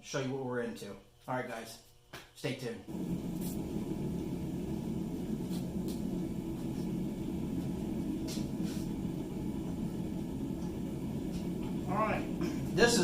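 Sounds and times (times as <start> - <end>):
forge rushing noise: 2.9 - 13.0.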